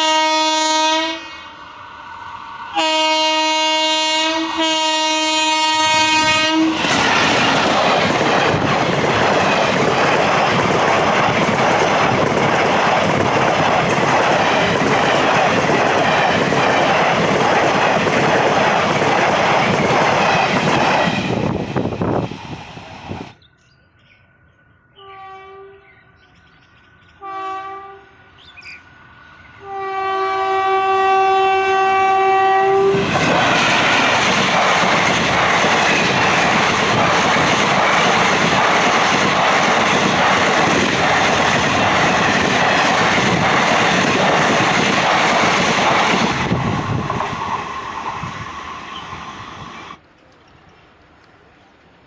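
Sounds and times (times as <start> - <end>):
locomotive horn blasts: 0.0 - 1.5, 2.8 - 6.8, 25.0 - 25.9, 27.2 - 28.3, 29.6 - 33.0
train wheels rushing on rails: 0.0 - 23.4, 26.2 - 50.0.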